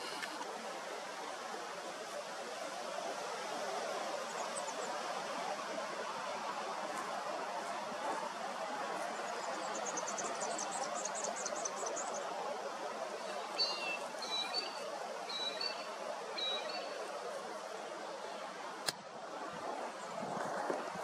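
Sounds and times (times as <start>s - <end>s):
outdoor background hiss: 0.0s - 20.3s
bird chirping: 13.2s - 17.0s.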